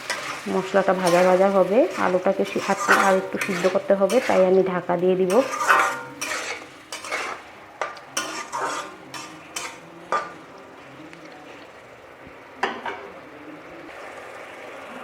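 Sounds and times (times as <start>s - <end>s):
spatula scraping a pan: 0.0s - 11.0s
oil sizzling: 0.0s - 15.0s.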